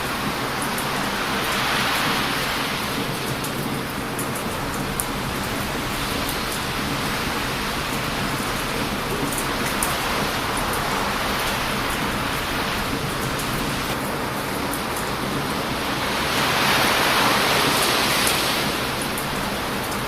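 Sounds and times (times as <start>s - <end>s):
surf washing on a beach: 0.0s - 20.0s
wood fire crackling: 3.2s - 15.5s.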